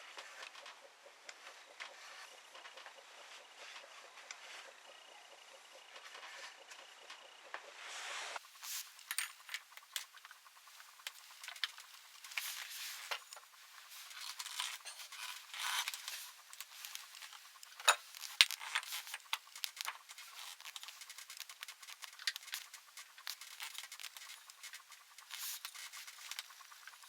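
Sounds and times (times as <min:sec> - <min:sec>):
tools clinking and scraping: 0:08.6 - 0:27.0.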